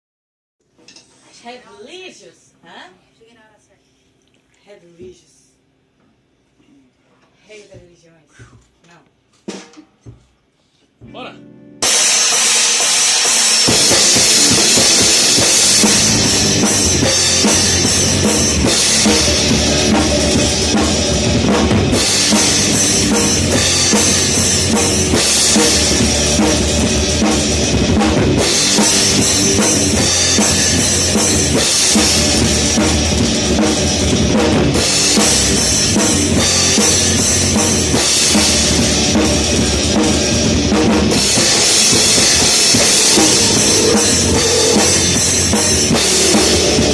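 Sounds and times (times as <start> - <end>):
rock band playing: 11.0 - 46.9
cymbals: 11.8 - 46.9
bass drum: 13.7 - 46.9.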